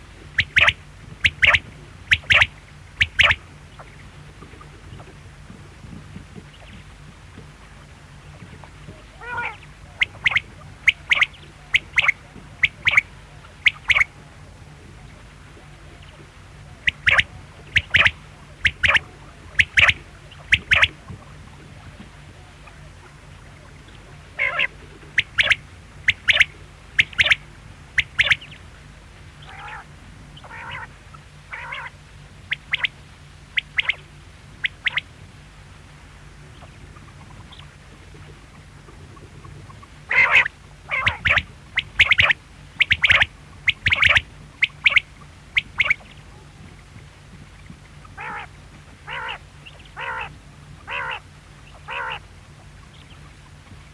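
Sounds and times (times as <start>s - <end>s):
steady low hum: 0.0s - 53.9s
quail calling: 0.3s - 4.1s, 9.1s - 14.3s, 15.8s - 21.3s, 22.0s - 28.6s, 29.4s - 35.1s, 39.0s - 46.5s, 48.0s - 53.4s.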